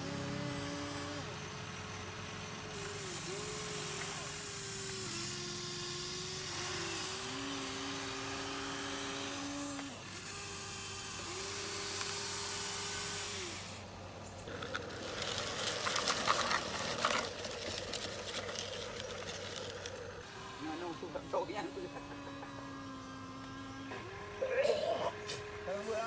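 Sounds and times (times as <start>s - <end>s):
small electric motors whining: 0.0s - 26.0s
bucket scraping in sand: 14.5s - 20.2s.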